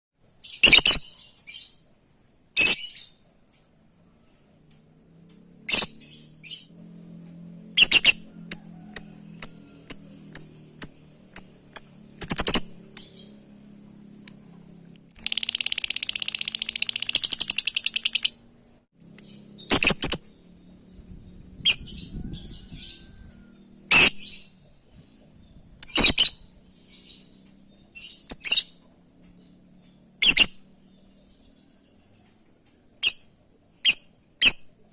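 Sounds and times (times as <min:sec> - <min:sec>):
lovebird calls: 0:21.6 - 0:24.5.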